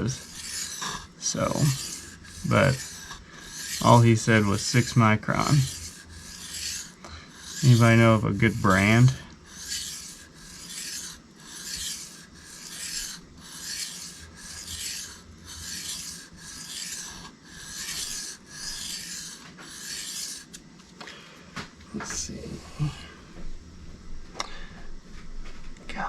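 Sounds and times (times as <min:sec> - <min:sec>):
knife scraping on whetstone: 0:00.0 - 0:20.6.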